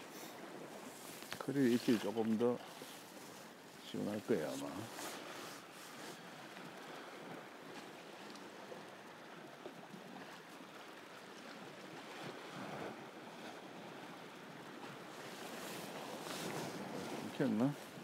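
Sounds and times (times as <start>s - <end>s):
sea washing against rocks: 0.0s - 3.2s, 12.3s - 18.0s
faint clicks: 8.3s - 8.5s.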